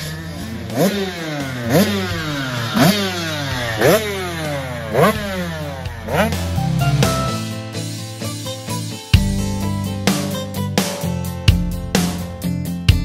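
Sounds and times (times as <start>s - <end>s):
motocross bike engine revving: 0.0s - 8.0s.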